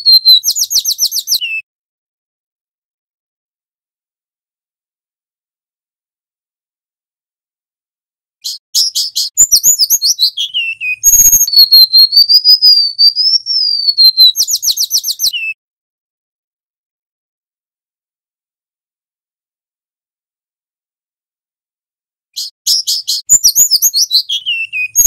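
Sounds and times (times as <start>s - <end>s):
bird singing high whistles: 0.0s - 1.6s, 8.4s - 15.6s, 22.4s - 25.0s.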